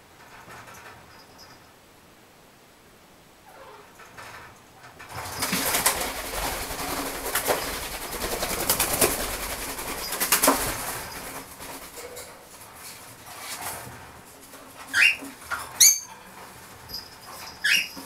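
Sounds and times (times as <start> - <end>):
birds flapping wings: 4.2 - 15.8.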